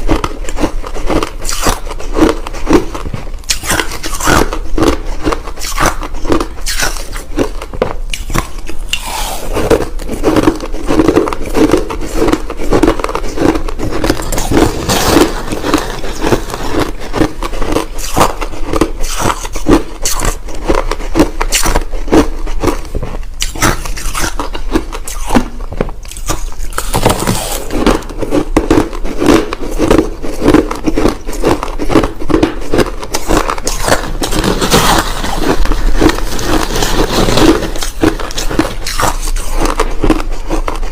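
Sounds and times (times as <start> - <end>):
crushed ice being chewed: 0.0 - 40.9.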